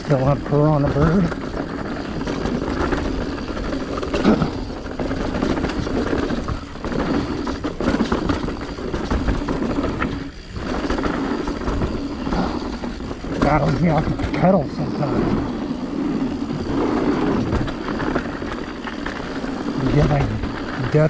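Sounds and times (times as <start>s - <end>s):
bike rattling over bumps: 0.0s - 21.0s
bike tyre noise on dirt: 0.0s - 21.0s.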